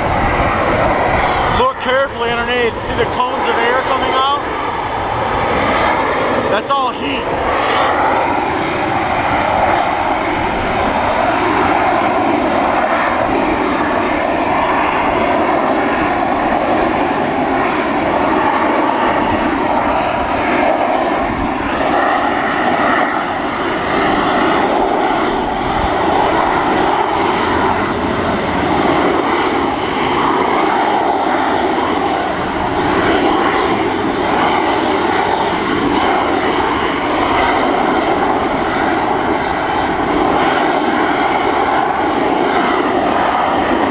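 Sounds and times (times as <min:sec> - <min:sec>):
jet engine roaring: 0:00.0 - 0:43.9.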